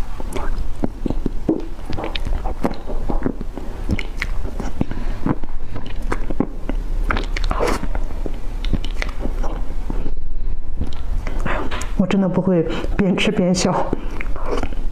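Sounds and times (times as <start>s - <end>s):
person chewing cake: 0.0s - 12.0s, 13.9s - 14.9s
wet mouth clicks and smacks: 0.2s - 9.7s, 10.8s - 12.0s, 13.9s - 14.9s.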